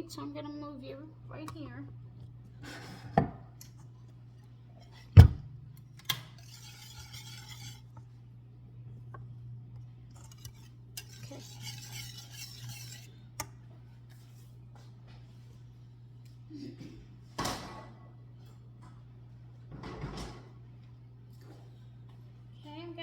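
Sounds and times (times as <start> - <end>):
forks scraping a dish: 6.3 - 8.0, 10.1 - 13.2.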